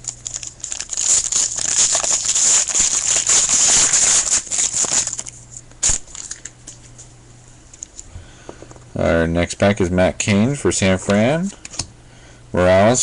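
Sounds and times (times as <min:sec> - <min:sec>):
wrapper tearing and crinkling: 0:00.0 - 0:06.6.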